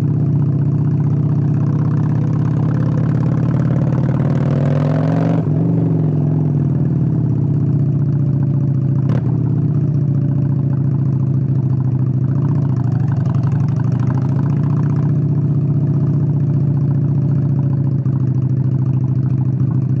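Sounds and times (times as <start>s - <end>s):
motorcycle engine idling: 0.0s - 4.0s, 6.3s - 20.0s.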